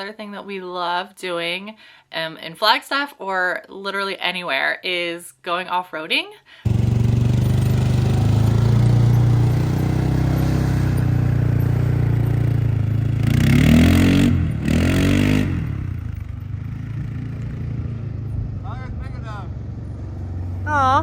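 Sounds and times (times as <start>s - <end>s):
off-road vehicle engine revving: 6.7s - 21.0s.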